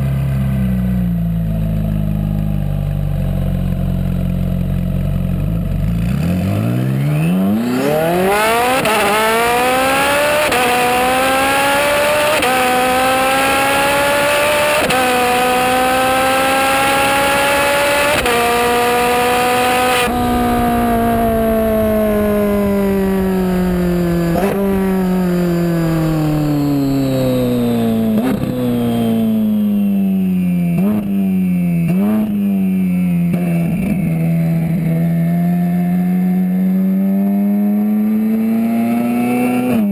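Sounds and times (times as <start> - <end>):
sports car engine revving through upshifts: 5.8 - 32.6, 33.3 - 39.9
exhaust cracks: 18.2 - 30.0.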